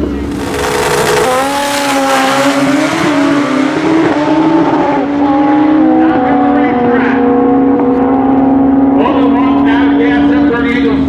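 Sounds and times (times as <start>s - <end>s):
motorcycle engines revving high: 0.0s - 8.0s
rushing noise: 0.3s - 3.1s.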